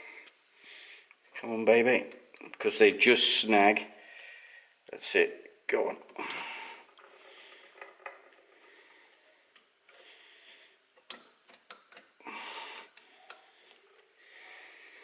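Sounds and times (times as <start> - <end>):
soft breathing: 0.0 - 1.3, 3.9 - 4.8, 6.2 - 11.0, 12.2 - 15.0.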